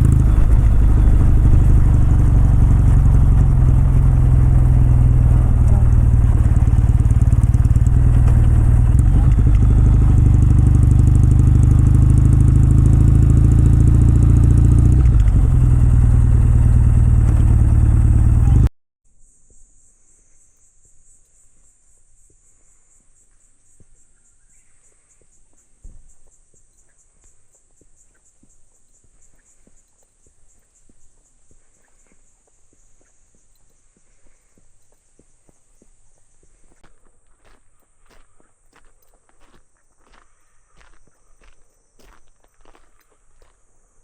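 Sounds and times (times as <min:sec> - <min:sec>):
motorcycle engine running: 0:00.0 - 0:18.7
light ticks: 0:26.7 - 0:33.8
high-pitched insect drone: 0:37.4 - 0:44.0.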